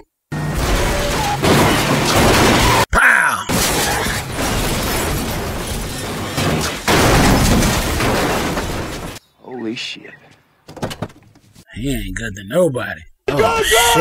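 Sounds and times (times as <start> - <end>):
crunching metal: 0.3 - 9.2
glass shattering: 0.4 - 2.9, 3.5 - 9.2.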